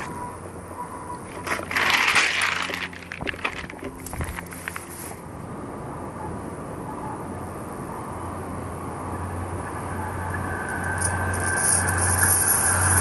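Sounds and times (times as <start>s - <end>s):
train rumbling on track: 0.0s - 13.0s
hissing rail noise: 7.7s - 13.0s.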